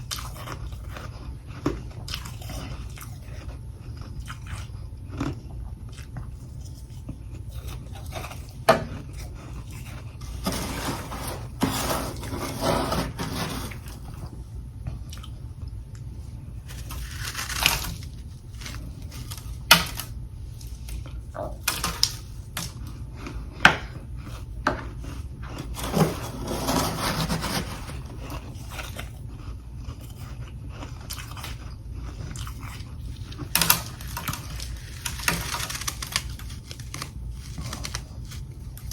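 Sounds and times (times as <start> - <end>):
person crunching frost: 16.5 - 38.9.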